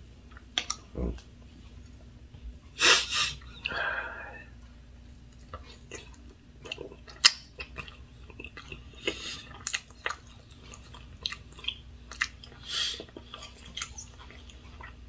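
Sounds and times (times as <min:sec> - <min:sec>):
hissy breaths: 0:02.8 - 0:04.5
wet chewing mouth clicks: 0:05.3 - 0:15.0.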